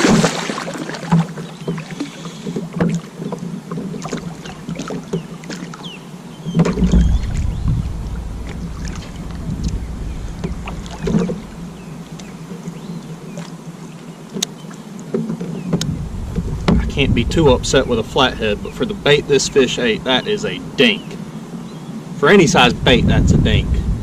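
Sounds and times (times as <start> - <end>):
gear and hull clicks and knocks: 1.0 - 5.8, 6.5 - 12.9, 14.3 - 17.1
heavy thumps: 6.6 - 12.2, 15.8 - 18.2
low rumble: 6.7 - 12.9, 15.8 - 19.3, 22.7 - 24.0.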